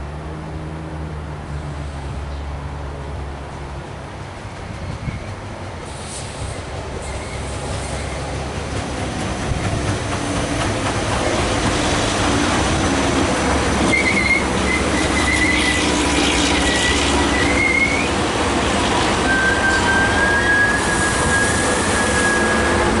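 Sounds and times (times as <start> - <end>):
train wheels rumbling on rails: 3.4 - 23.0
high-pitched wheel squeal: 13.9 - 15.9, 16.6 - 18.1, 19.2 - 23.0.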